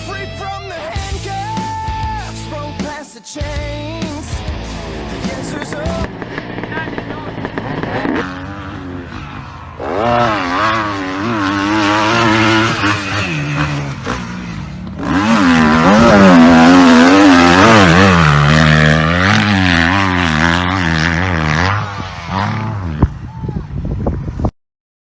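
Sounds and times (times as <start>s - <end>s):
motocross bike engine revving: 3.8s - 23.2s.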